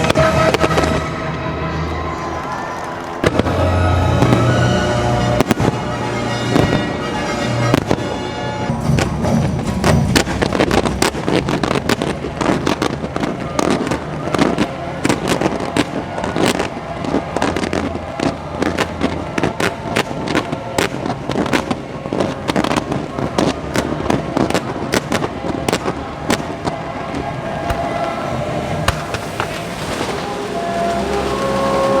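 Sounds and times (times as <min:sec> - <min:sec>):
fireworks cracking and popping: 0:00.0 - 0:32.0.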